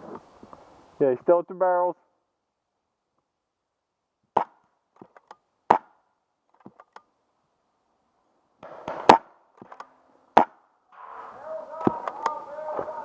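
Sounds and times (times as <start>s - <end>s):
paintball gun shots: 4.3s - 6.0s, 8.6s - 10.7s.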